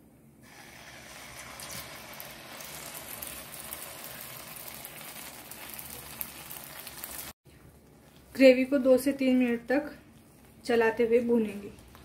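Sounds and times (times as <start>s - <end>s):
paste sizzling in hot oil: 0.4s - 7.4s.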